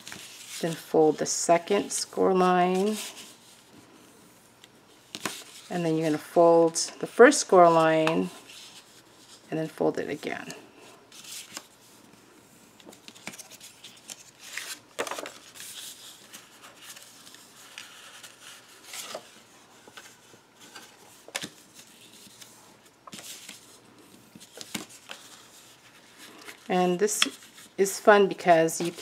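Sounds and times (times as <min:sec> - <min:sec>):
paper rustling: 0:00.0 - 0:01.0, 0:12.8 - 0:29.0.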